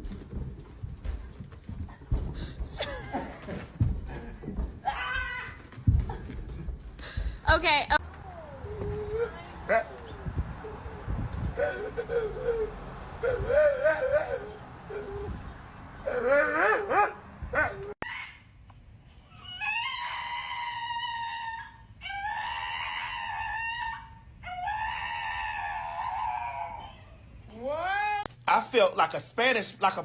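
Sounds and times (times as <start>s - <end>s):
dog howling and whining: 8.1s - 18.4s, 19.2s - 28.3s.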